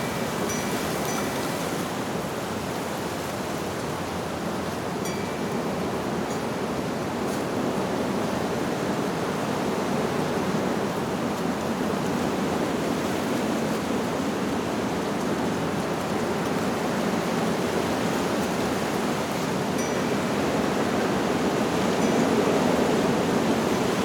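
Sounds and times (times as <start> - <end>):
wind blowing through leaves: 0.0 - 24.0.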